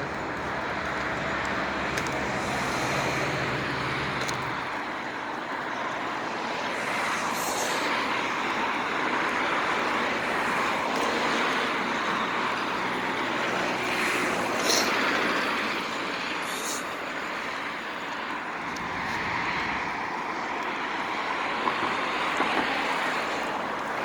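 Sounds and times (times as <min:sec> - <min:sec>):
low engine hum: 0:00.0 - 0:22.3
road and wind noise: 0:00.0 - 0:24.0.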